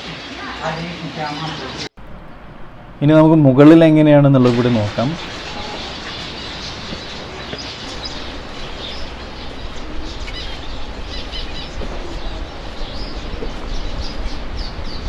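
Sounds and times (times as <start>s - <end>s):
steady low rumble: 2.0s - 15.0s
small birds chirping and twittering: 4.6s - 15.0s.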